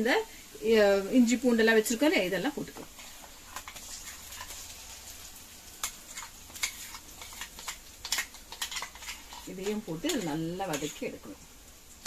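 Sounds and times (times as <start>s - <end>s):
shallots sizzling in oil: 0.0s - 12.0s
spoon scraping a pan: 2.2s - 11.4s.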